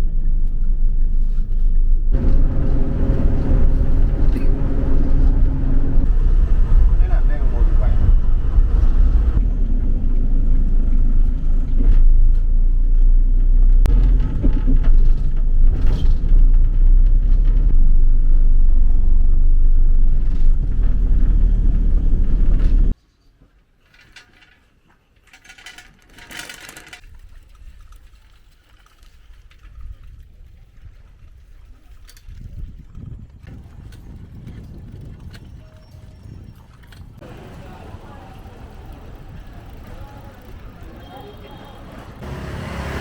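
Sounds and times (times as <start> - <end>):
road vehicle rumbling: 0.0 - 23.0, 37.0 - 43.0.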